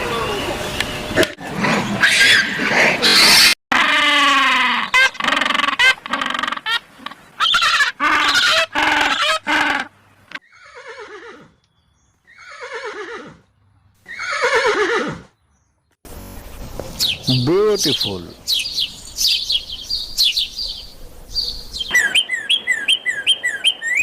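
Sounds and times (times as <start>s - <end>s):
horse neighing: 7.4s - 11.6s, 12.3s - 15.3s.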